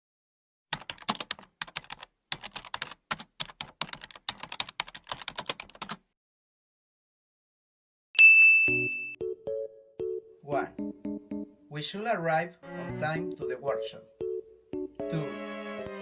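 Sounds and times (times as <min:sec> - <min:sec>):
typing on a keyboard: 0:00.7 - 0:06.0.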